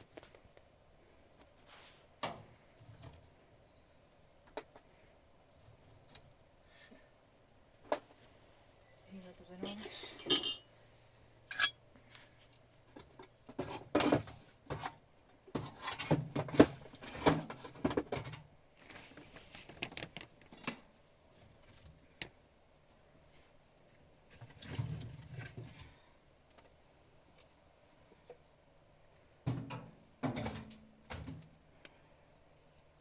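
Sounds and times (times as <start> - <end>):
objects knocking and rustling: 12.8 - 22.4, 29.4 - 31.9.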